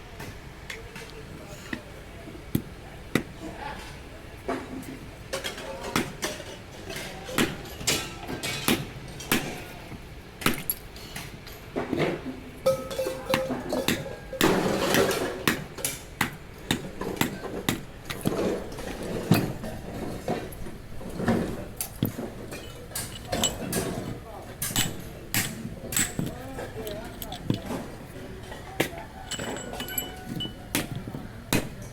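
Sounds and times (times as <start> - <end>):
metal knocks and clinks: 12.6 - 15.2, 18.1 - 31.2.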